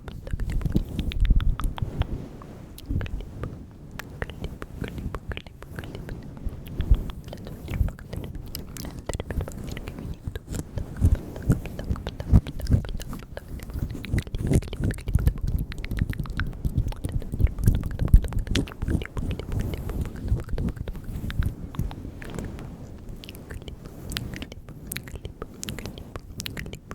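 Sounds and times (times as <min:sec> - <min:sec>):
wet mouth clicks and smacks: 0:00.0 - 0:02.2, 0:04.0 - 0:26.9.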